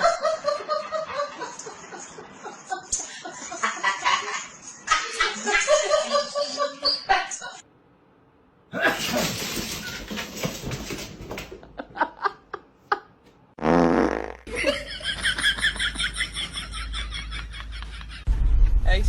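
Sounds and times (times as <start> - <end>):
buzzy fart-like sound: 13.6 - 14.5.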